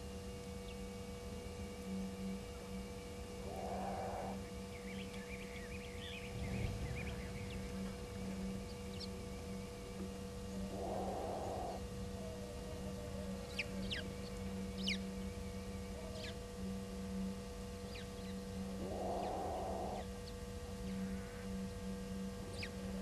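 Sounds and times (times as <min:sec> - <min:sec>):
steady electrical hum: 0:00.0 - 0:23.0
animal low rough call: 0:03.4 - 0:04.5, 0:10.5 - 0:13.3, 0:18.8 - 0:20.1.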